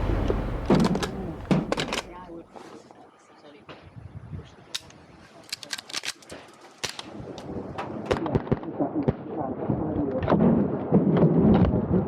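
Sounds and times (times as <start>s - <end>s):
low rumbling noise: 0.0s - 2.4s
rifle shots cracking: 0.0s - 2.4s.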